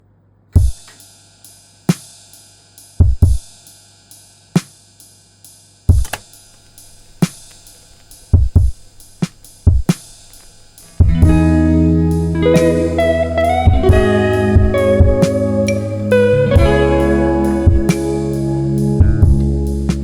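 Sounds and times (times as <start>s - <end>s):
sharp snare hits: 4.6s - 4.8s, 5.9s - 11.5s
fast steady ticking: 5.9s - 16.8s
deep kick drum hits: 8.3s - 10.0s, 11.0s - 11.7s, 13.7s - 15.2s, 17.7s - 17.9s, 19.0s - 19.5s.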